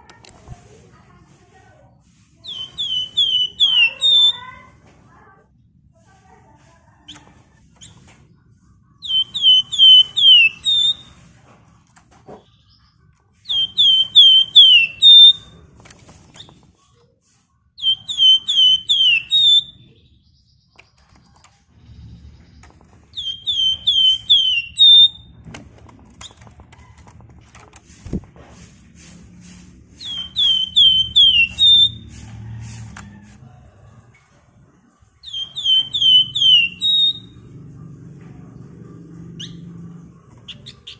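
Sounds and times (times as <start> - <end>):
songbird singing whistled phrases: 2.4 - 4.4, 9.0 - 11.2, 13.4 - 15.5, 17.8 - 20.0, 23.2 - 25.3, 30.0 - 32.0, 35.2 - 37.4.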